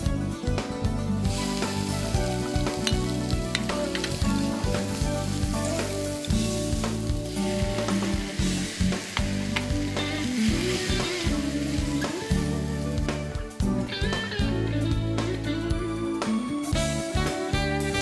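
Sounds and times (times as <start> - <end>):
food sizzling in a pan: 1.2 - 14.6.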